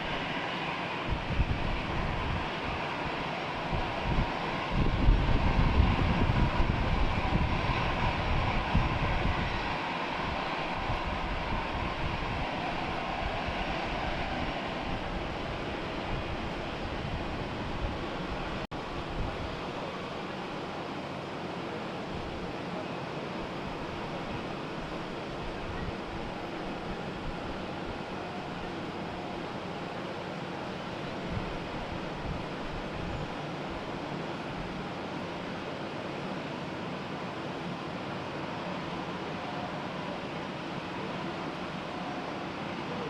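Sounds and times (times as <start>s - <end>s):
wind buffeting microphone: 0.0s - 19.6s, 31.2s - 33.9s
faint steady whine: 0.0s - 43.0s
jet engines rumbling: 0.0s - 43.0s.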